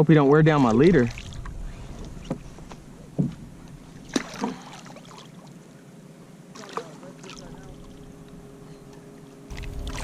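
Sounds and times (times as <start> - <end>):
light water noise: 0.0 - 10.0
fish splashing: 0.6 - 5.6, 9.5 - 10.0.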